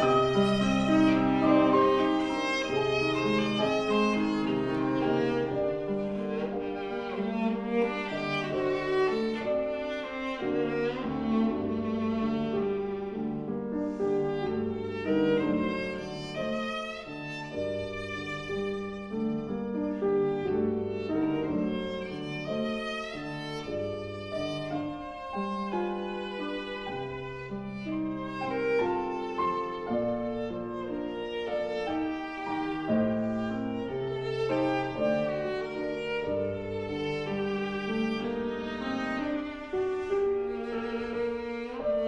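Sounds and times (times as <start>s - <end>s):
piano accompaniment: 0.0s - 42.0s
viola playing bowed melody: 0.0s - 42.0s.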